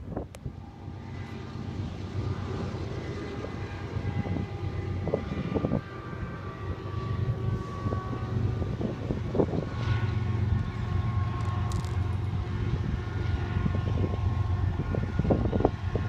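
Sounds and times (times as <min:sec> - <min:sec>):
distant diesel locomotives rumbling: 0:00.0 - 0:16.0
wind buffeting microphone: 0:00.0 - 0:16.0
faint steady tones: 0:00.1 - 0:16.0.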